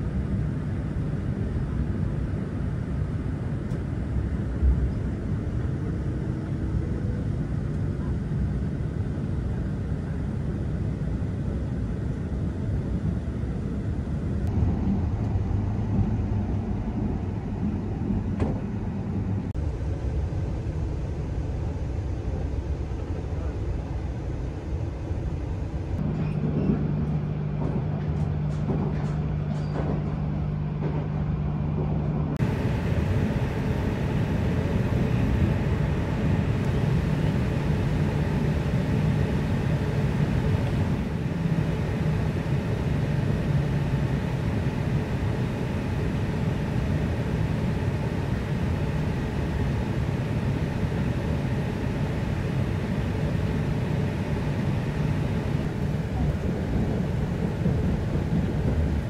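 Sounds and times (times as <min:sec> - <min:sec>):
train rumbling on track: 0:00.0 - 0:59.0
low steady hum: 0:24.5 - 0:59.0.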